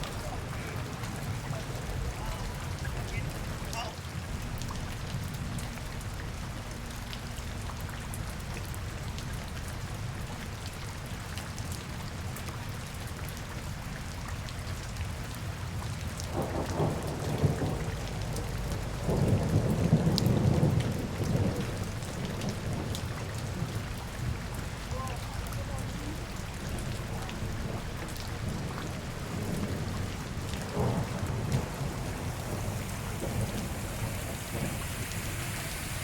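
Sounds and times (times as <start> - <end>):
rain falling on street: 0.0 - 36.0
deeper rumble: 25.9 - 36.0.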